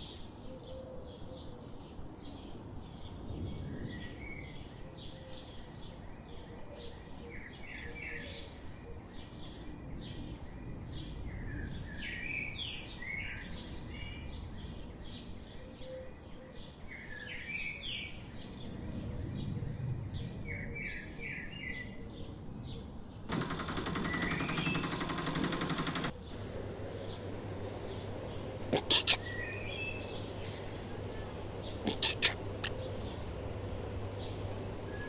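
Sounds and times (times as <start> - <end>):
small birds chirping: 23.2 - 35.0
harsh buzzing noise: 23.3 - 35.0
steady background hiss: 23.3 - 35.0.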